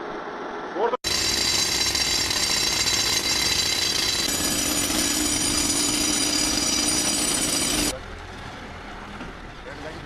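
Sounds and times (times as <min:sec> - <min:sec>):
heavy machinery running: 0:01.1 - 0:08.0.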